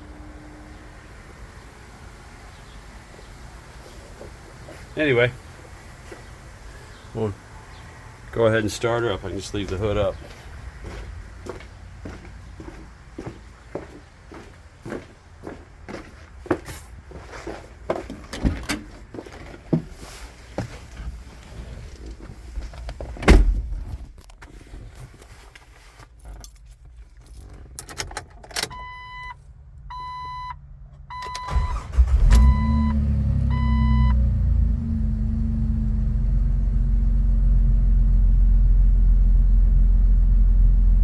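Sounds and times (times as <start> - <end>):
car engine starting and idling: 0.0 - 15.5, 26.5 - 41.0
thump: 23.2 - 23.9
keys jingling: 26.1 - 28.6.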